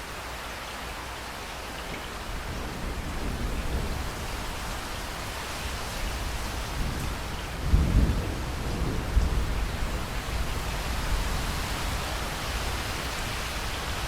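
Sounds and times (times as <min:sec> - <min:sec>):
heavy rain: 0:00.0 - 0:14.0
low thunder rumbling: 0:02.2 - 0:13.4.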